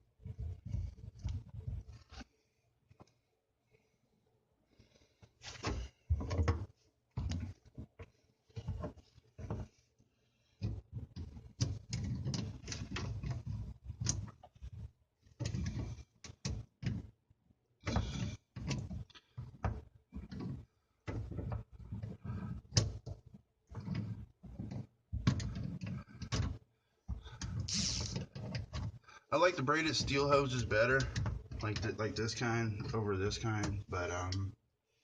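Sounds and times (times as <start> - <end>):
plumbing fittings clicking and rattling: 10.6 - 14.7, 17.8 - 34.5.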